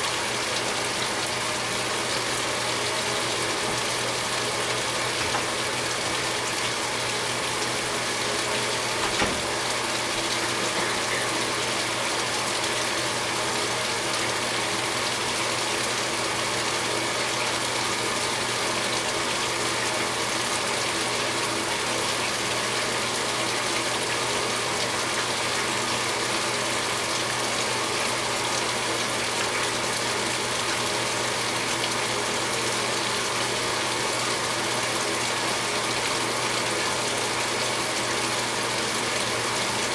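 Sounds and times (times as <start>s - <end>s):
water pouring into washer tub: 0.0s - 39.9s
short knock: 9.0s - 9.6s.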